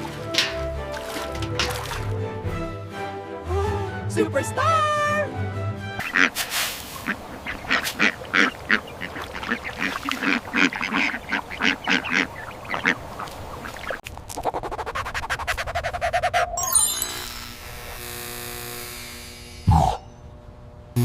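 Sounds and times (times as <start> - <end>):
ducks quacking: 6.0 - 14.0.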